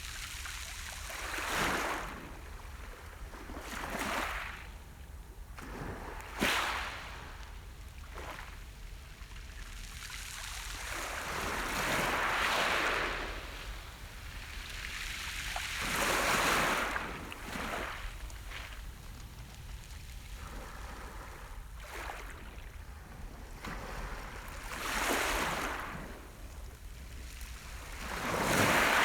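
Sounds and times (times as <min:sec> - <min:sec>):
waves splashing on shore: 0:09.6 - 0:29.0
surf washing: 0:09.9 - 0:29.0.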